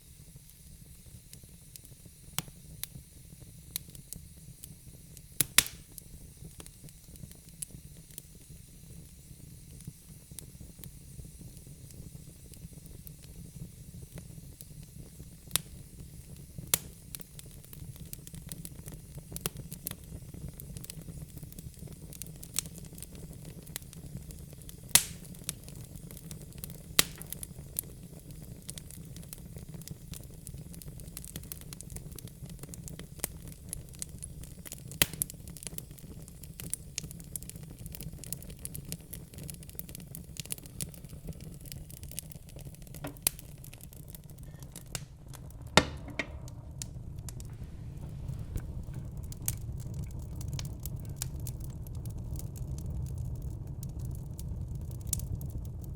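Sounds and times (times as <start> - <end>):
logs crackling in fireplace: 0.0 - 55.9
sharp fire pops: 3.7 - 55.9
low even rumble: 43.0 - 54.9.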